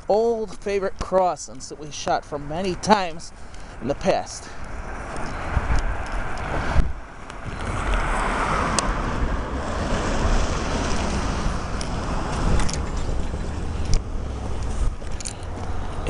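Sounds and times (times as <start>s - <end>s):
road traffic passing: 0.0s - 16.0s
wind buffeting microphone: 4.5s - 16.0s.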